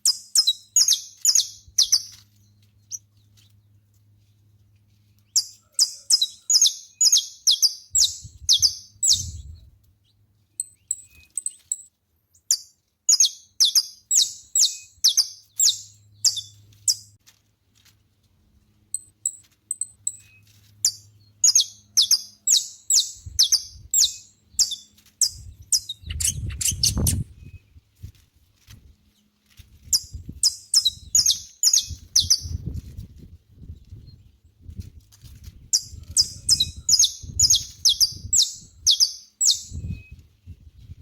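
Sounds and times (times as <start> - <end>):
finch singing: 0.0 - 2.2, 5.3 - 9.7, 12.5 - 17.1, 19.7 - 27.7, 29.9 - 32.8, 35.7 - 40.2.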